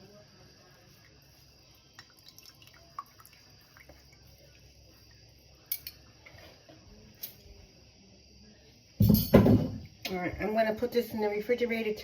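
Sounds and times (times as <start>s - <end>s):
faint liquid drips: 0.6s - 7.3s.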